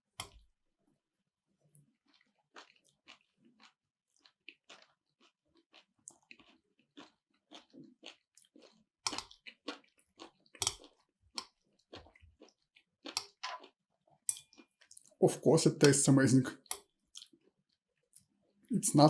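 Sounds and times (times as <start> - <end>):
chewing seaweed salad: 1.8 - 16.0, 16.6 - 18.4.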